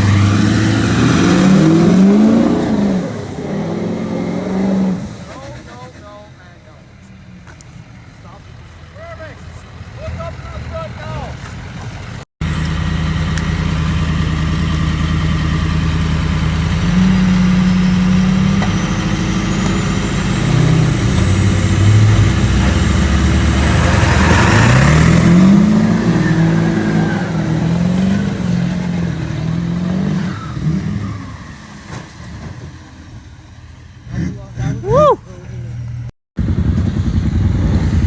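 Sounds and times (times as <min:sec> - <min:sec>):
vehicle engine revving: 0:00.0 - 0:38.0
rush of noise: 0:36.4 - 0:38.0.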